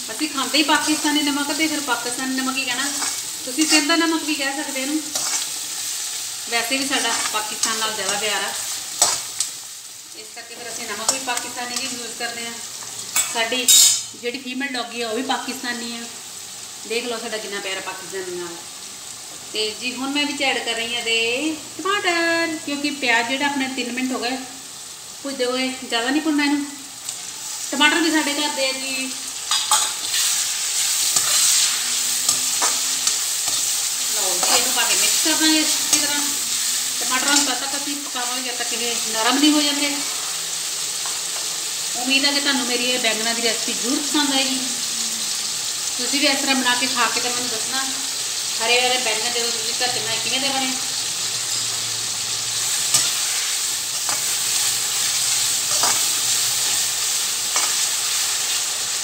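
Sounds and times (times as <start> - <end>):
spatula scraping wok: 0.0 - 9.8, 10.6 - 14.1, 29.3 - 42.0, 50.4 - 59.0
vegetables sizzling in hot oil: 0.0 - 59.0.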